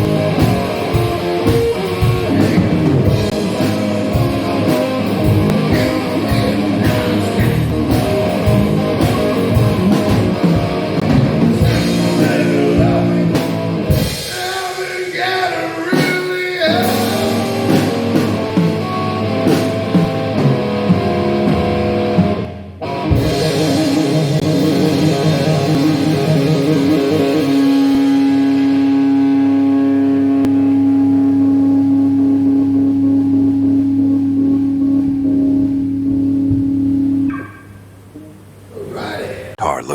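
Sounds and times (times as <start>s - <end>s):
drum kit: 0.0s - 14.8s, 15.9s - 28.9s
electric guitar: 0.0s - 37.8s.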